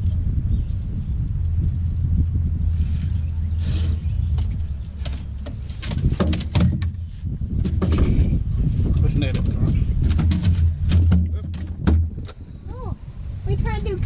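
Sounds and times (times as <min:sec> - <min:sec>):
steady low rumble: 0:00.0 - 0:14.0
sharp knocks and clicks: 0:04.4 - 0:07.0, 0:09.3 - 0:12.4.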